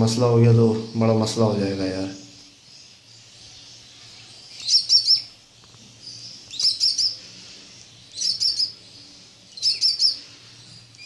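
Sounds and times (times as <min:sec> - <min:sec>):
chicks chirping: 0:00.0 - 0:11.0.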